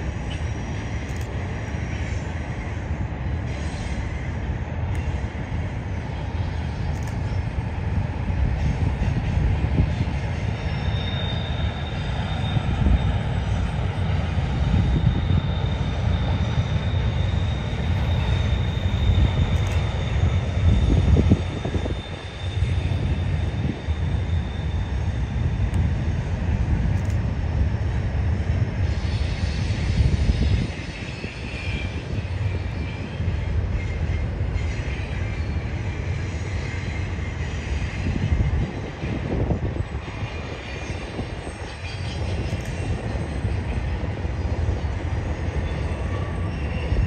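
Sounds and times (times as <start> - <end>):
freight train rumbling: 0.0 - 47.0
faint wheel squeal: 8.6 - 25.7, 39.0 - 47.0.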